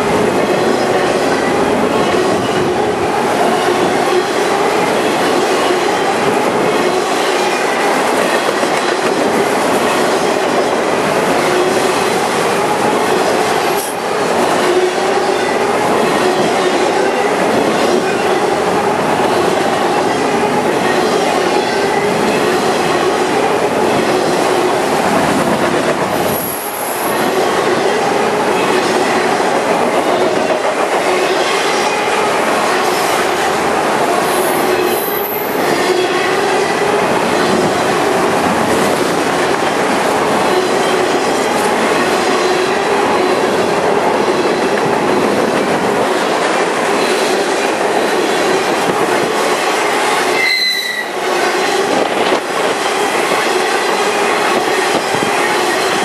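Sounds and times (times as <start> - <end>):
freight car wheels rumbling on rail: 0.0 - 56.0
ringing wheel squeal: 50.4 - 51.2.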